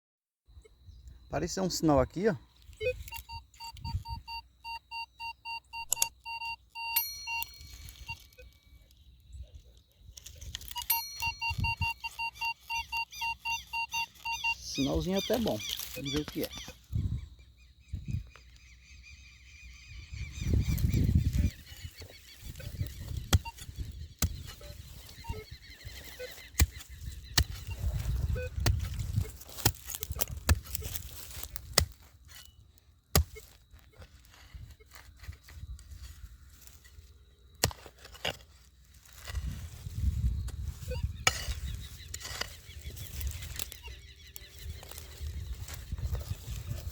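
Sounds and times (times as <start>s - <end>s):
metal detector beeps: 1.8s - 9.0s, 10.2s - 17.0s, 20.3s - 31.6s, 32.2s - 37.0s, 39.3s - 46.9s
scraping and handling noise: 26.0s - 46.9s
digging tool knocks: 33.1s - 33.6s.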